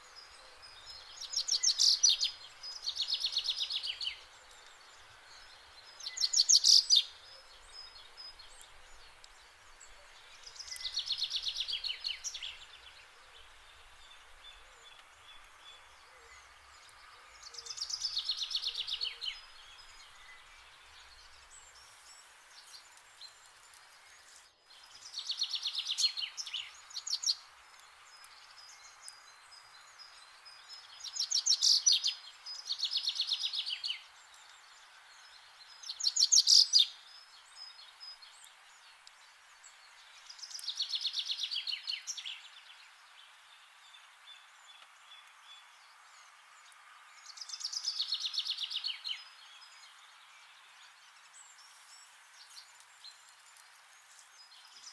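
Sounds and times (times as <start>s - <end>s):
faint steady hiss: 0.0s - 54.9s.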